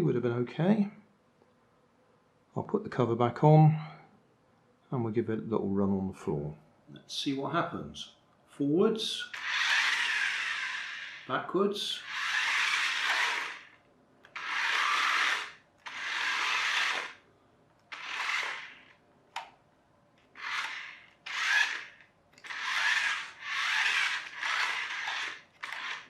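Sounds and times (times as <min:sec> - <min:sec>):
small electric motor whirring: 0:09.3 - 0:17.2, 0:17.9 - 0:19.0, 0:20.2 - 0:26.0.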